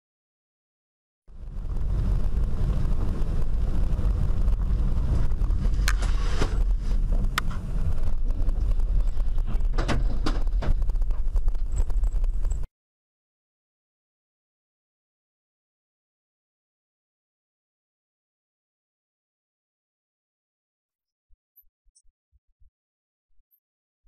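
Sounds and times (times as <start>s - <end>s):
car engine and road noise: 1.3s - 12.7s.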